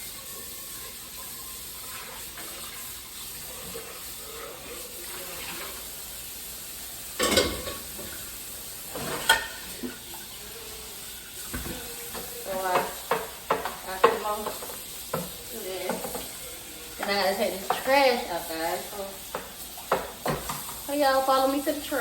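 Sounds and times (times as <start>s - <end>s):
tap water running into sink: 0.0s - 22.0s
dishes clattering: 7.1s - 8.3s, 8.9s - 10.4s, 11.4s - 18.2s, 19.2s - 20.9s.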